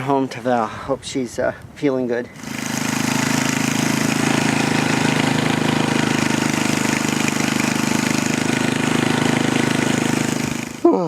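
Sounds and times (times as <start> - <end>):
snowblower engine running: 2.4 - 10.9.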